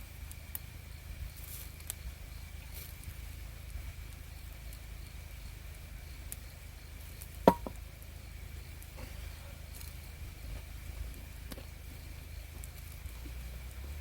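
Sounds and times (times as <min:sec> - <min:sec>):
low steady rumble: 0:00.0 - 0:14.0
sharp knock: 0:07.5 - 0:07.8.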